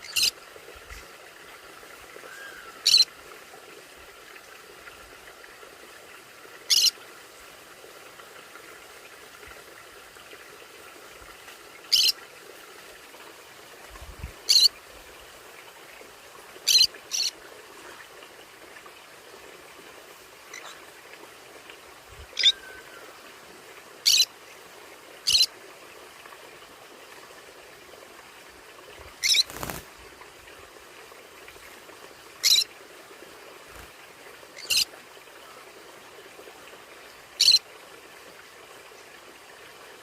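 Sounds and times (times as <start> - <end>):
parrot high-pitched calls: 2.3 - 3.1, 6.7 - 6.9, 11.9 - 12.1, 14.5 - 14.7, 22.4 - 23.0, 24.0 - 24.3, 25.3 - 25.5, 29.2 - 29.7, 32.4 - 32.6.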